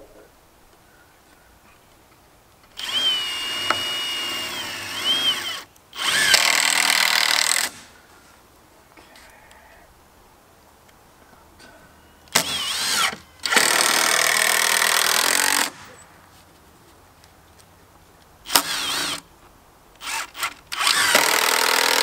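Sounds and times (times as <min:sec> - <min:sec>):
power drill driving screws: 0:02.7 - 0:07.8, 0:12.3 - 0:15.9, 0:18.5 - 0:19.3, 0:20.0 - 0:22.0.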